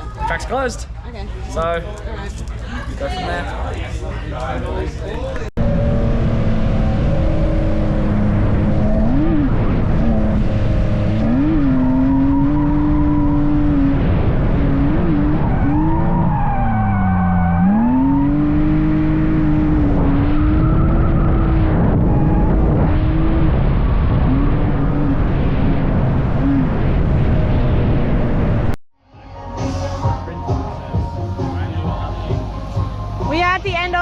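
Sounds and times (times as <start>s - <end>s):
car engine at high revs: 5.6s - 28.8s.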